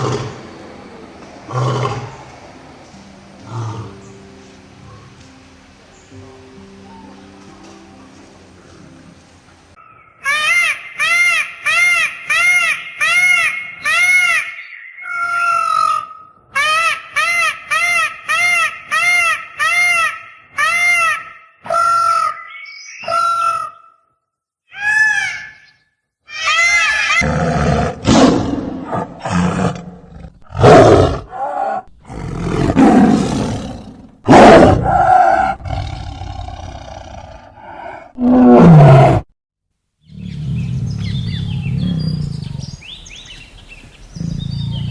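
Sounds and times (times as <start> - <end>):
big cat roaring and growling: 0.0 - 0.4, 1.5 - 2.3, 27.2 - 39.3, 40.1 - 42.8, 44.1 - 44.9
repeated rising and falling calls: 9.8 - 24.0.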